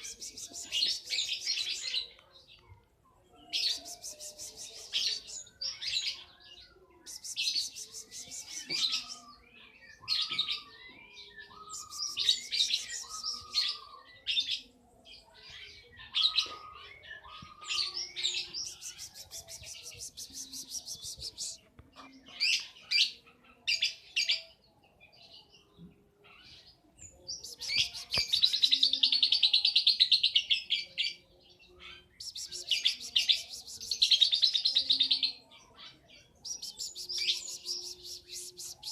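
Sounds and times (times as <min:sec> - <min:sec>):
lovebird trilling chirps: 0:36.4 - 0:38.9.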